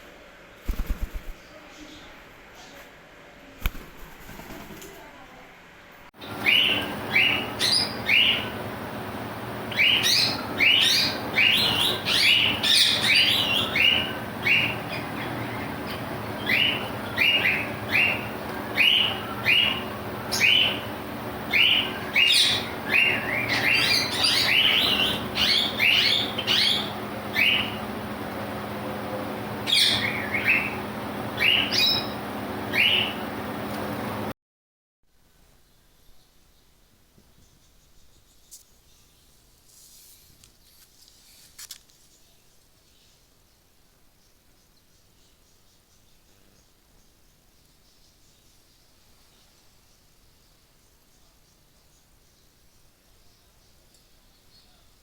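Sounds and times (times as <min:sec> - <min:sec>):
steady low hum: 0:00.0 - 0:34.3
parrots chirping: 0:06.2 - 0:28.0, 0:29.6 - 0:33.2.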